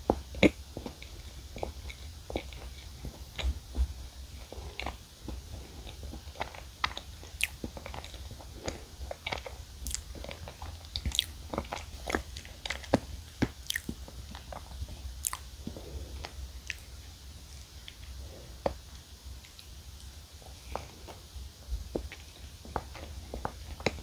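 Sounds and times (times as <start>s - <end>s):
wet chewing clicks and smacks: 0.1s - 16.9s.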